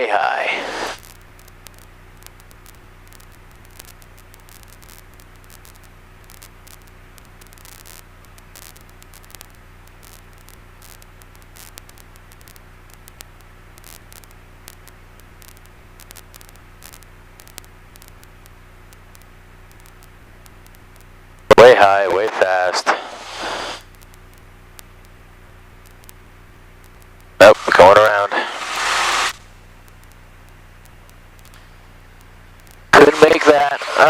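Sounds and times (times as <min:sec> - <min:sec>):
faint crackles: 0:00.0 - 0:34.0
static hiss: 0:00.0 - 0:34.0
low hum: 0:11.4 - 0:34.0.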